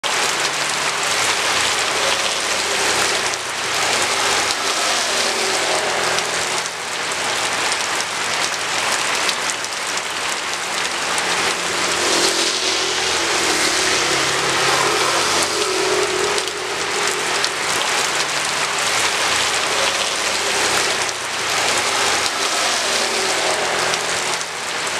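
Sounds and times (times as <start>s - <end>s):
heavy rain on hard surfaces: 0.0s - 24.9s
passing vehicle engine hum: 0.1s - 24.9s.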